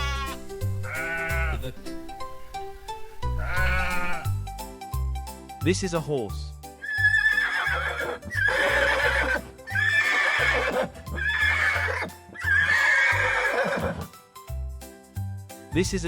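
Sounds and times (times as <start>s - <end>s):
horse neighing: 0.0s - 1.8s, 3.4s - 4.4s, 6.8s - 14.1s
background music: 0.0s - 16.0s.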